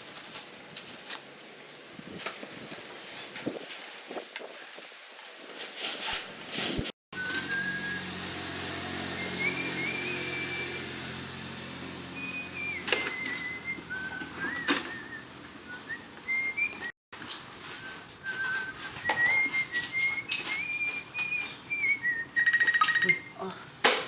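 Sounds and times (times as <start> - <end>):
person whistling a slow tune: 7.2 - 8.3, 9.0 - 11.0, 12.2 - 16.9, 17.8 - 23.4.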